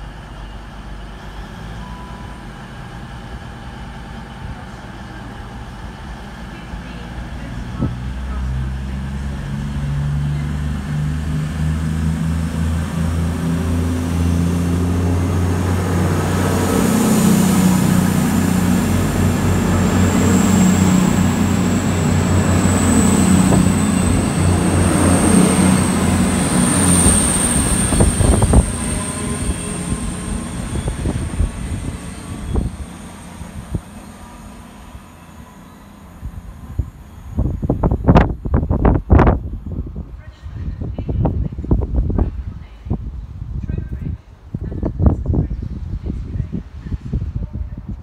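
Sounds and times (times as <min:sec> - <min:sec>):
diesel engines humming: 0:00.0 - 0:47.6
train wheels rumbling: 0:00.0 - 0:48.0
high thin squeal: 0:26.7 - 0:37.4.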